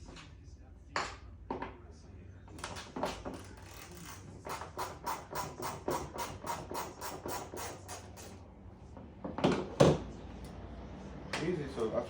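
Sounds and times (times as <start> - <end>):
hand ratchet clicking: 3.3 - 8.3.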